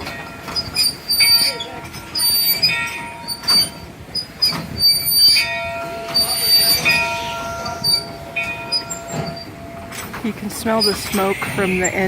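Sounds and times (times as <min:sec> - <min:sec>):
steam train moving slowly: 0:00.0 - 0:12.0
train wheels squealing: 0:00.4 - 0:09.6.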